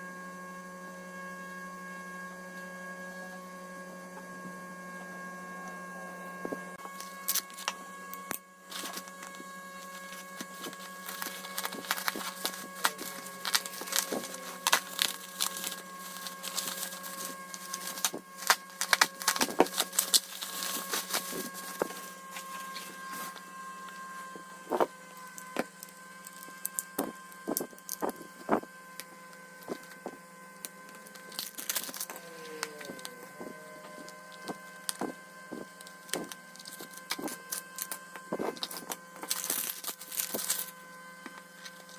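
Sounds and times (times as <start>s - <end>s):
steady electrical hum: 0.0s - 41.9s
packaging crackling and clicking: 6.9s - 23.4s, 24.7s - 40.7s.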